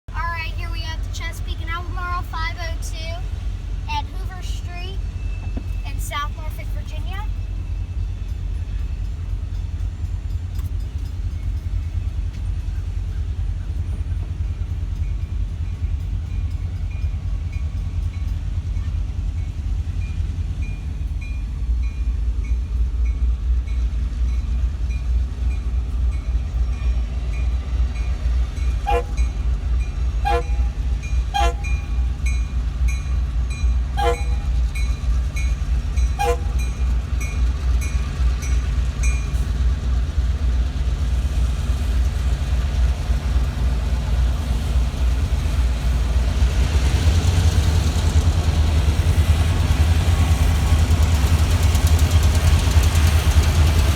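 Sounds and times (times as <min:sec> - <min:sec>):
freight train rumbling: 0:00.1 - 0:53.9.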